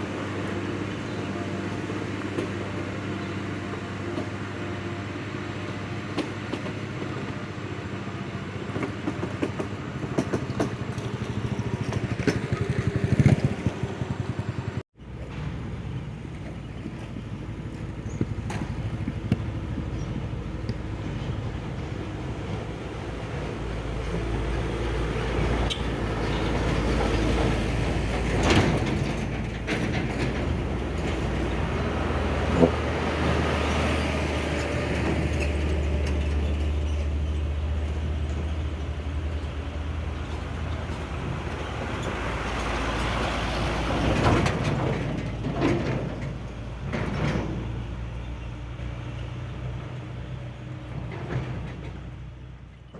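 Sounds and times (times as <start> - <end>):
diesel truck engine under load: 0.0 - 52.9
sharp knocks and rattles: 8.7 - 48.3, 50.6 - 52.9.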